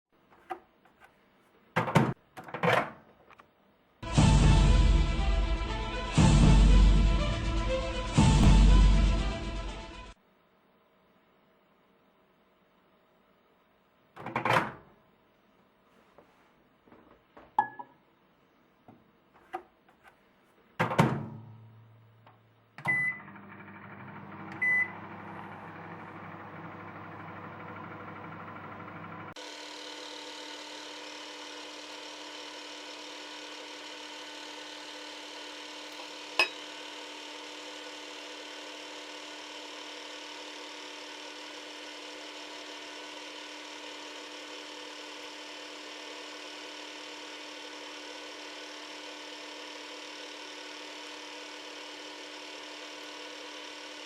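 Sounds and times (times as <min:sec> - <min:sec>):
microwave oven humming: 0:04.0 - 0:10.2, 0:21.2 - 0:54.0.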